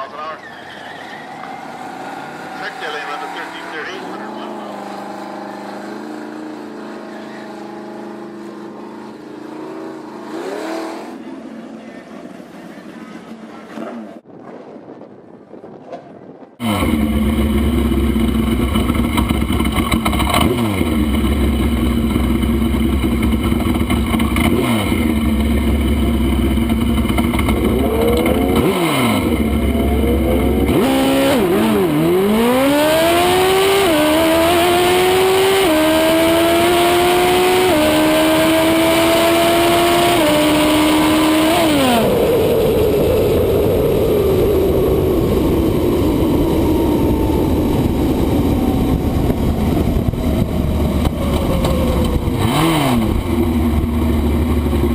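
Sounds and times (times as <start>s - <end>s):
motorcycle engine revving: 0.0s - 14.3s, 16.6s - 54.9s
motorcycle accelerating through gears: 1.4s - 14.3s, 16.6s - 54.9s.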